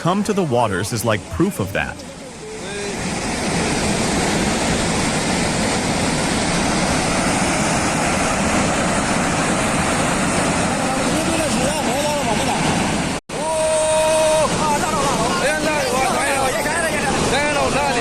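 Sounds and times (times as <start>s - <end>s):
rushing floodwater: 0.0s - 18.0s.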